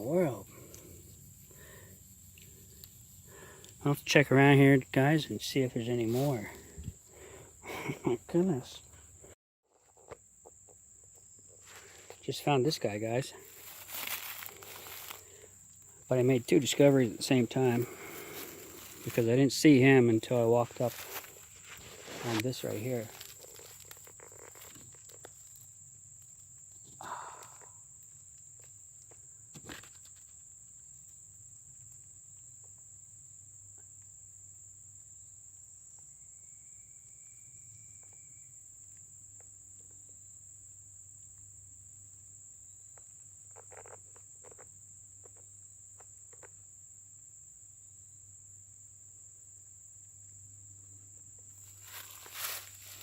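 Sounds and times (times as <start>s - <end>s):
high-pitched insect drone: 0.0s - 9.1s, 10.4s - 28.1s, 35.3s - 39.6s, 51.4s - 53.0s
faint rustles: 13.2s - 25.6s, 51.6s - 53.0s.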